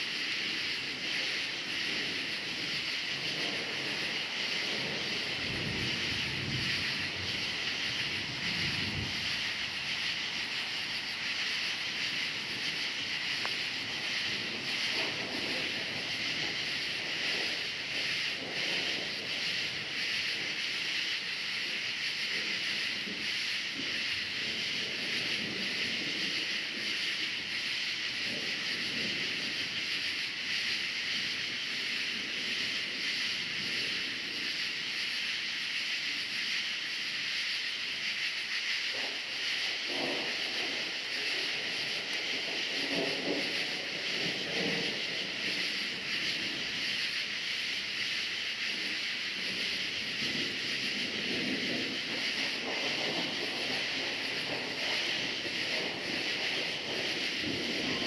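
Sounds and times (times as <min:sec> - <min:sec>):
crickets chirping: 0:00.0 - 0:58.0
distant thunder rumbling: 0:00.5 - 0:20.6, 0:39.0 - 0:47.1, 0:48.7 - 0:58.0.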